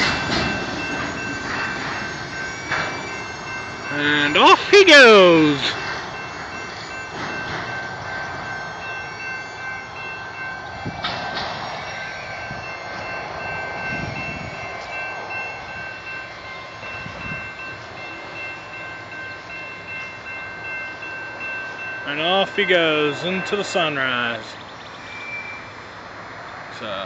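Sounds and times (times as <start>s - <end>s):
freight train rumbling: 0.0s - 27.0s.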